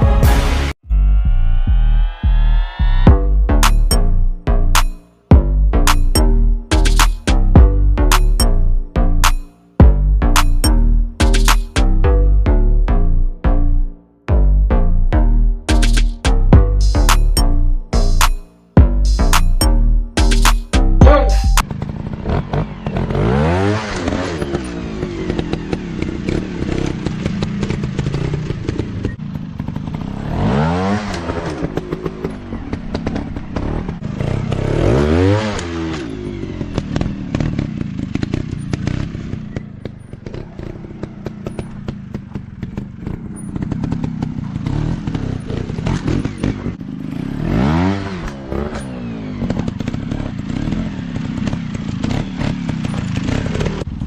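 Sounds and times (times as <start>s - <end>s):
dirt bike engines revving: 20.2s - 54.0s
clatter and scraping: 35.5s - 46.8s, 48.2s - 54.0s.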